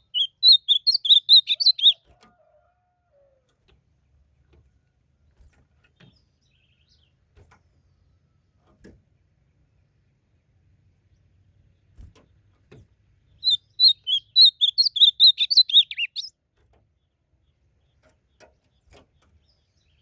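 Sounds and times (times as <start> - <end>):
bird warbling song: 0.0 - 2.1, 5.4 - 8.4, 9.0 - 16.3, 16.9 - 20.0
faint distant bird notes: 5.2 - 16.3.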